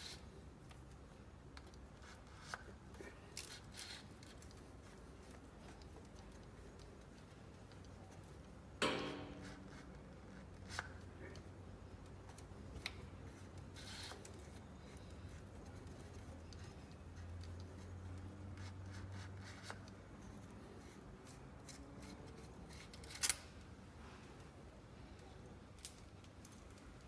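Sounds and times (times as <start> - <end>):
sharp ringing knock: 8.8 - 9.6.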